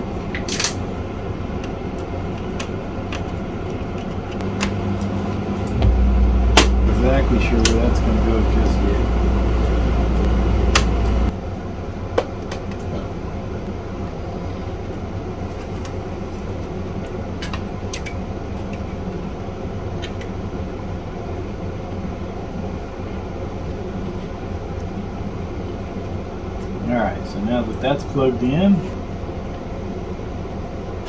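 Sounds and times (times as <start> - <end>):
room hum: 1.0 - 11.3.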